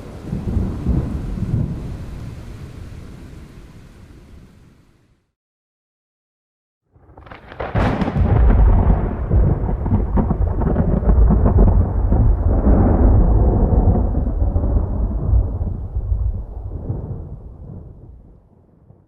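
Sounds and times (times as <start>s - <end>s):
thunder crack and rumble: 0.0s - 3.2s, 7.0s - 19.0s.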